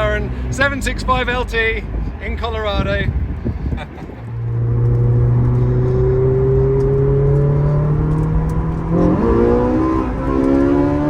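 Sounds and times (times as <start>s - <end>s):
car engine accelerating: 4.1s - 11.0s.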